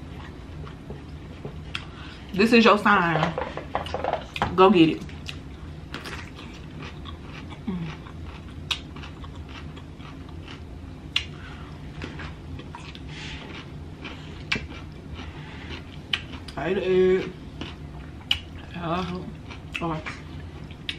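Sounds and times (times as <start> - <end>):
steady low hum: 0.0 - 20.9
vegetable chewing crunches: 5.2 - 11.3.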